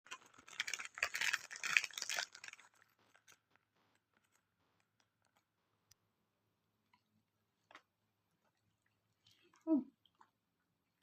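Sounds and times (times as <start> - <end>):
dog crunching a hard snack: 0.1 - 3.6.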